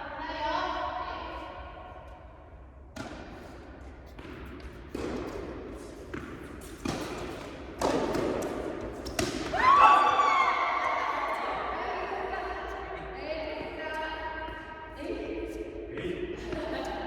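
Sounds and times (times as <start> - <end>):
tennis balls hit and bouncing: 2.0 - 14.6, 16.3 - 17.0.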